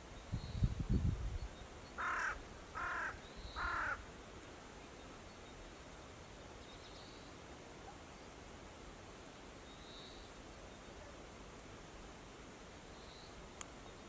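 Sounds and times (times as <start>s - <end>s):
crow cawing: 2.0s - 4.0s.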